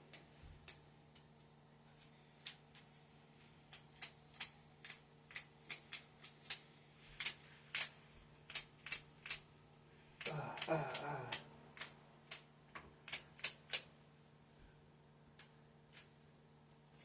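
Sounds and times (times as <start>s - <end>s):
faint low hum: 0.0s - 17.0s
plastic puzzle segments clicking: 3.7s - 6.6s, 10.2s - 13.9s.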